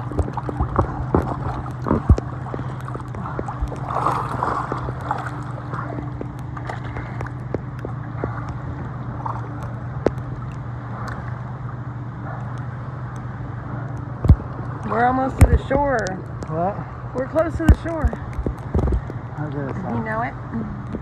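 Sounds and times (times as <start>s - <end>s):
small knocks and splashes: 0.0s - 11.5s, 13.8s - 16.6s, 17.6s - 20.0s
steady low hum: 0.0s - 21.0s
water sloshing and gurgling: 0.0s - 21.0s.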